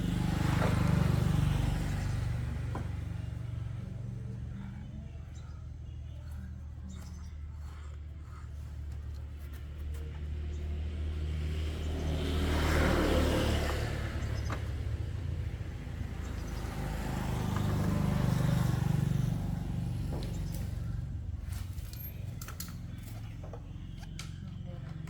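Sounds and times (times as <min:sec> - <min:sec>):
low engine drone: 0:00.0 - 0:09.8
vehicles passing by: 0:00.0 - 0:25.0.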